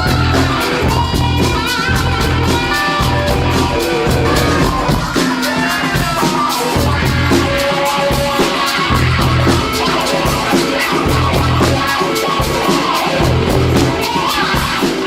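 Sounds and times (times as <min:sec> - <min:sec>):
repeating bass line: 0:00.0 - 0:05.0, 0:06.8 - 0:07.6, 0:08.9 - 0:09.7, 0:11.1 - 0:11.9, 0:13.2 - 0:14.0
drums with busy hi-hat: 0:00.0 - 0:15.0
electric guitar: 0:00.0 - 0:15.0.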